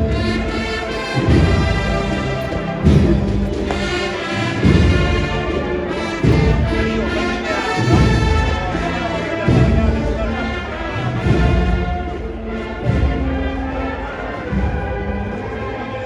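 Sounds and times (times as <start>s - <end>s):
heavy drum beat: 0.0s - 15.6s
brass band playing a march: 0.0s - 16.0s.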